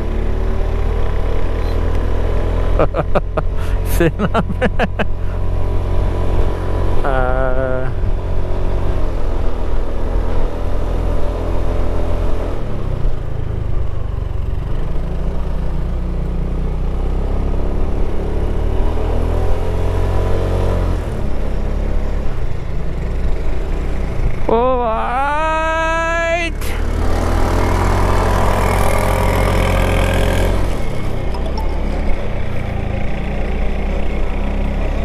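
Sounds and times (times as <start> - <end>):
motorcycle engine revving: 26.7 - 31.3.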